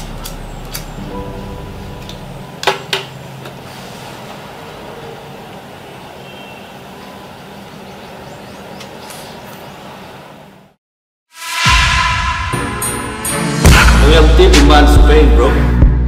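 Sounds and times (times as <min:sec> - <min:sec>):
low hum: 0:00.0 - 0:02.6.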